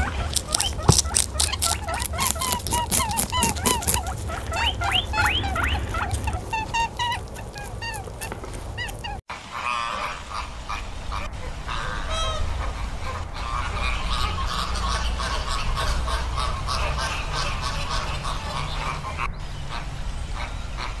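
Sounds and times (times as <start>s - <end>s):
quick high chirps: 0.0s - 9.2s
flamingos honking: 0.0s - 21.0s.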